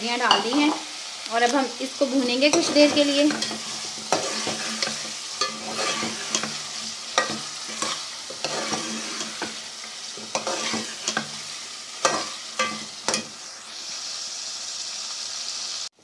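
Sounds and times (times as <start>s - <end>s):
food sizzling in a pot: 0.0s - 16.0s
ladle scraping and knocking pot: 2.5s - 11.4s, 12.0s - 13.4s.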